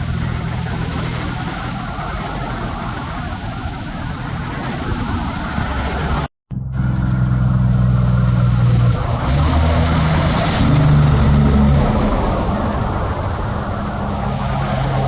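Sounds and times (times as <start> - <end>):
truck engine running: 0.0 - 4.1
tyre and traffic noise: 0.0 - 15.0.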